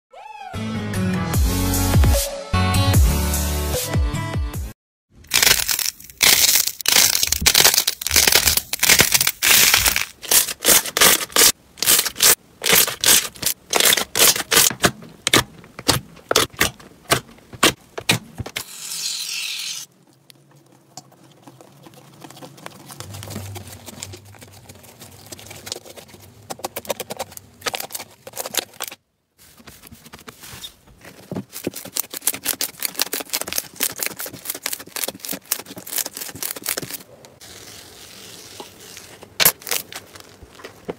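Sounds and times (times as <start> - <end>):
soft squishing: 19.9 - 40.9.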